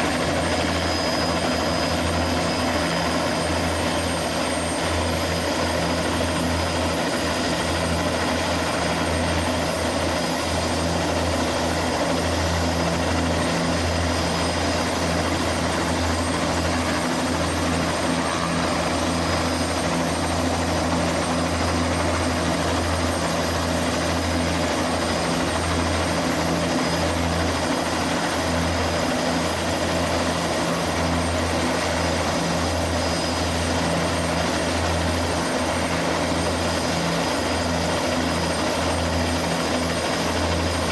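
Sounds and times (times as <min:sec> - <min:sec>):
helicopter rotor beat: 0:00.0 - 0:40.9
high turbine whine: 0:00.0 - 0:40.9.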